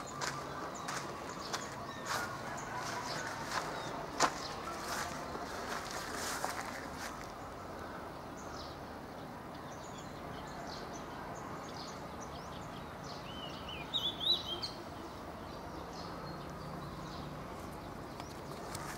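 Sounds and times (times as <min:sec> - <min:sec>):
birds chirping: 0:00.0 - 0:18.9
outdoor background hiss: 0:03.7 - 0:18.9.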